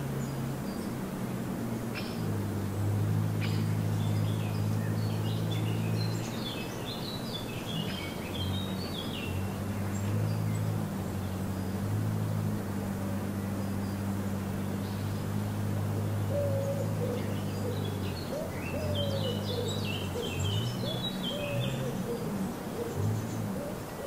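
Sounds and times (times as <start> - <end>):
songbird singing: 0.0 - 24.0
steady low hum: 0.0 - 24.0.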